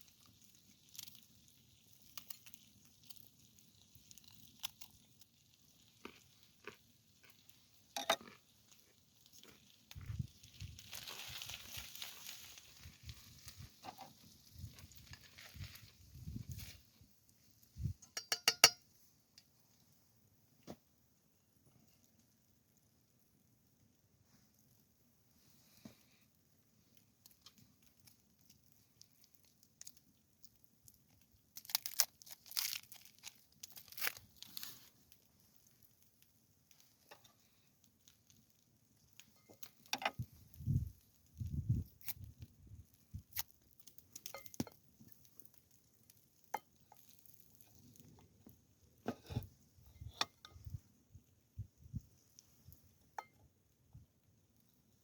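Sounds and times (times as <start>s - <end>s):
crinkling and rustling handling: 8.0s - 18.0s, 25.3s - 51.0s.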